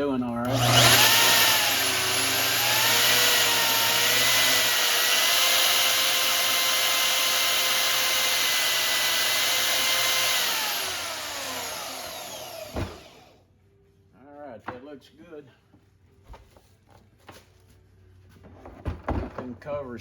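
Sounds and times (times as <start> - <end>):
band saw motor whine: 0.4 - 13.4.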